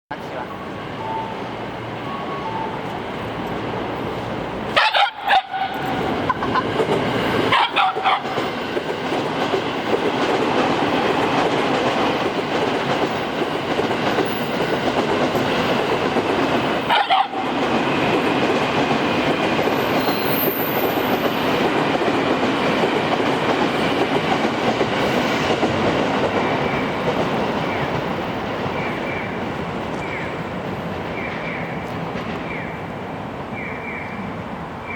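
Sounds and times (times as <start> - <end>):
train running on rails: 0.1 - 34.9
dog barking: 4.8 - 5.8, 7.5 - 8.5, 16.9 - 17.5.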